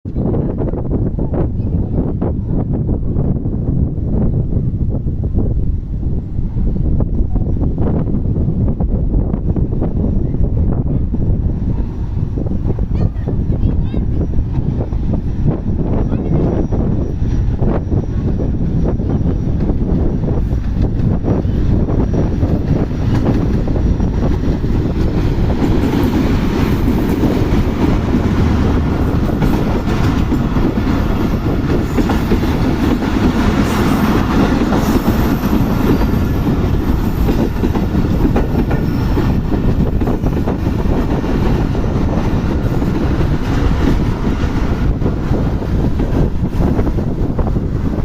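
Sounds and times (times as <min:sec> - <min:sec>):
train wheels clattering over rails: 0:14.2 - 0:48.0.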